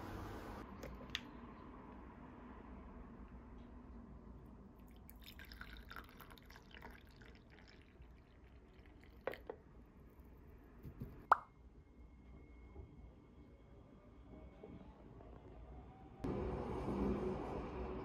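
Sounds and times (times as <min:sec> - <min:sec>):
liquid trickling and dripping: 0:04.8 - 0:09.6.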